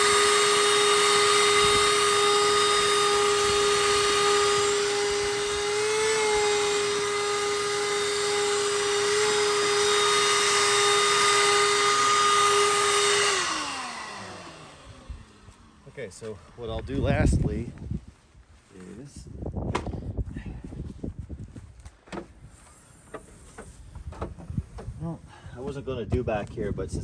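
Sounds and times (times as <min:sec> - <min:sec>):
shop vac whining: 0:00.0 - 0:17.8.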